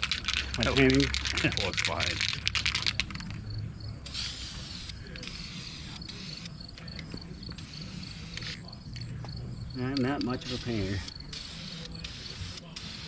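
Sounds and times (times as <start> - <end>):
spray-paint can hissing: 4.1 - 6.6, 7.6 - 8.6, 10.2 - 13.0.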